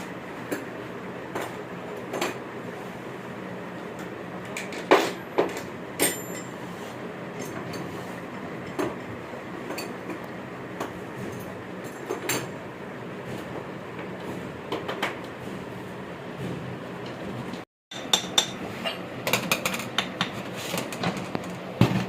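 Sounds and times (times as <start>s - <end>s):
steady background hum: 0.0s - 22.0s
metal tools clinking on bench: 6.0s - 6.6s.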